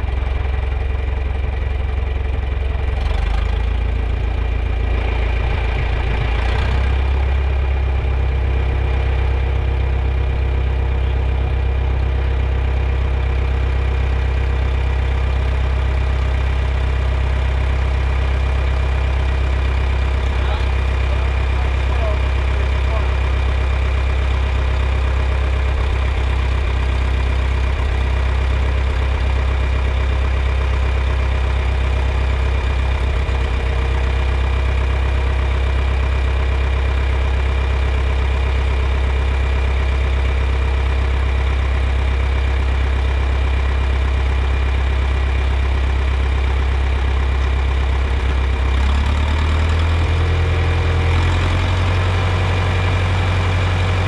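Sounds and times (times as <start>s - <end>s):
tractor engine idling: 0.0s - 54.0s.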